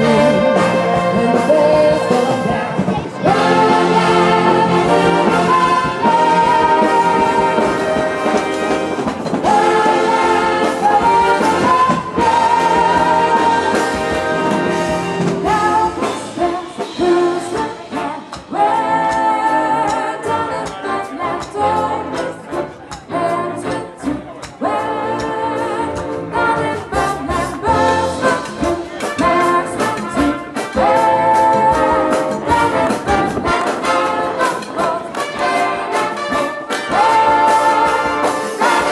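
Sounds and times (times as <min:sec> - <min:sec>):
brass section holding chords: 0:00.0 - 0:16.0, 0:28.6 - 0:38.9.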